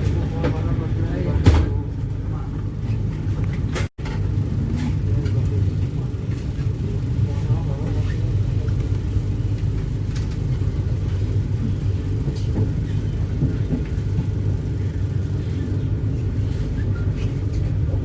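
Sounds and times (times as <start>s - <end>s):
train rumble from inside carriage: 0.0s - 18.0s.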